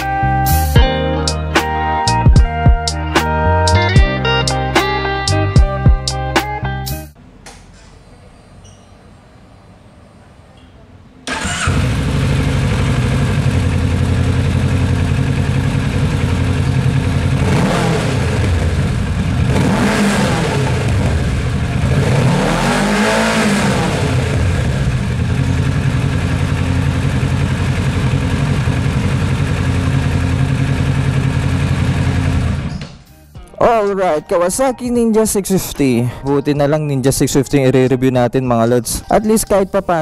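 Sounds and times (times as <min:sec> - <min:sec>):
motorcycle engine idling and revving: 0:11.3 - 0:33.0.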